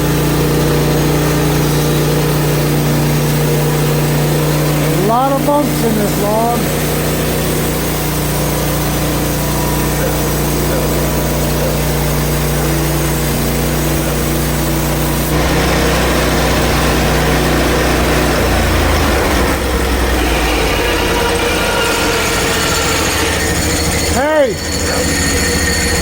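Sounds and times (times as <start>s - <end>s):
saw blade cutting log: 0.0s - 26.0s
sawmill engine running: 0.0s - 26.0s.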